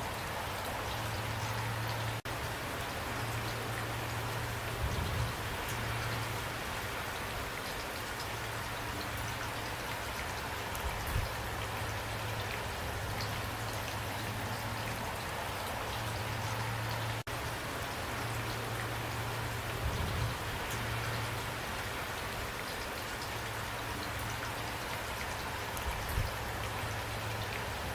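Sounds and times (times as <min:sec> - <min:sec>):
close raindrop ticks: 0:00.0 - 0:27.9
rain falling: 0:00.0 - 0:27.9.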